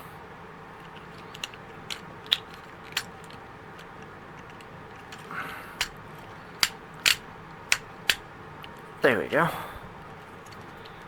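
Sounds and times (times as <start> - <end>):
handling rustle: 0.6 - 9.0, 10.0 - 11.0
hard plastic clicks: 0.8 - 8.8.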